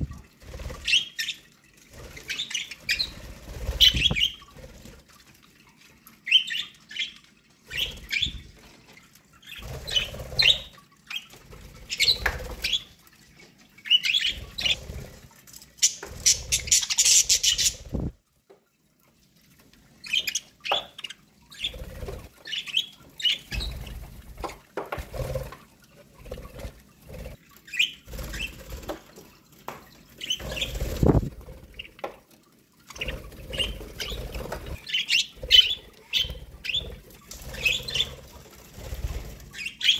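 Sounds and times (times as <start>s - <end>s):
wing fluttering: 0.0s - 6.0s, 7.7s - 13.3s, 14.0s - 18.2s, 21.5s - 39.9s
budgerigars chirping: 34.8s - 36.9s, 39.6s - 39.9s.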